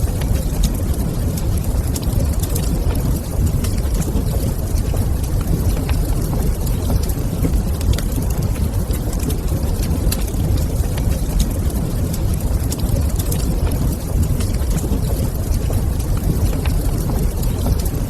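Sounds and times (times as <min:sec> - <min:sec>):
low fire rumble: 0:00.0 - 0:18.0
wood fire crackling: 0:00.0 - 0:18.0.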